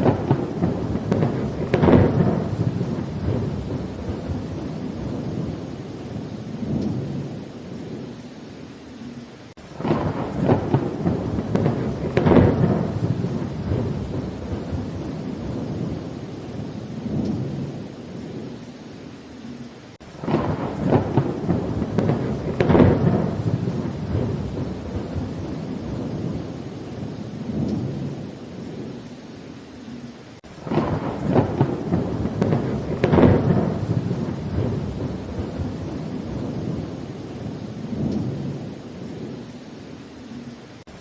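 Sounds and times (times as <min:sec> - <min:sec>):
crackling thunder rolls: 0:00.0 - 0:08.3, 0:09.6 - 0:18.7, 0:19.4 - 0:29.2, 0:29.9 - 0:41.0
steady rain: 0:00.0 - 0:41.0.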